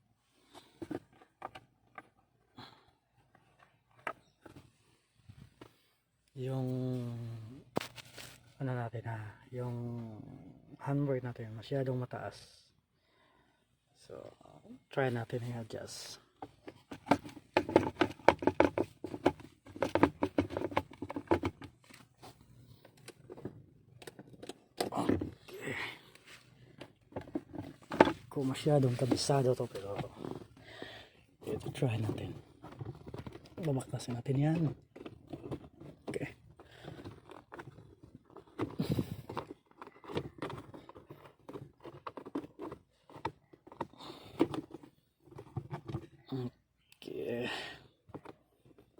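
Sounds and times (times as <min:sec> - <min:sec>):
rustling scrape: 0:07.8 - 0:08.6, 0:27.3 - 0:30.6.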